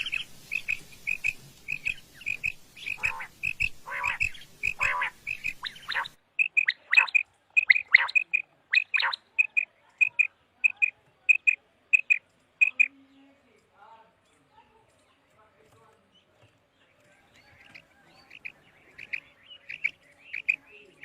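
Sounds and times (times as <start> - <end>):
background hiss: 0.0 - 12.9, 17.4 - 21.0
quail calling: 0.0 - 12.9, 17.6 - 21.0
harsh rasping bird calls: 0.0 - 13.1, 17.2 - 21.0.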